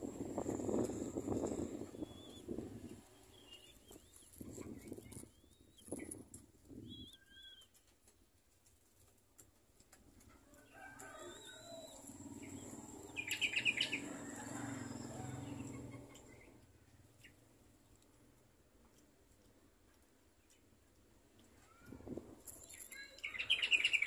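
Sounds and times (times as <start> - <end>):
high bird chirps: 11.4 - 14.1, 22.6 - 24.0.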